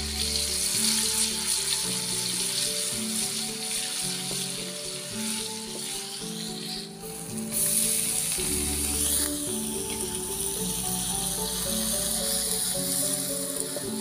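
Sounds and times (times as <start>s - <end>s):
background music: 0.0s - 14.0s
paste sizzling in hot oil: 0.0s - 14.0s
metal spatula stirring in wok: 0.2s - 13.8s.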